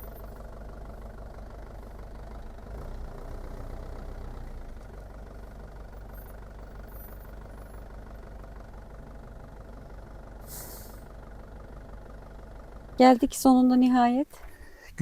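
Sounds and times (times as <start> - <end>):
bus engine running: 0.0 - 15.0
short hiss: 10.4 - 11.0.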